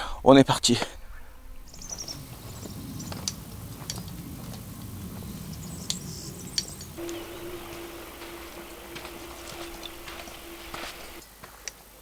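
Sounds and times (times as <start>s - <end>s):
bird trill: 1.7s - 4.1s, 5.2s - 11.2s
faint low rumble: 1.9s - 11.2s.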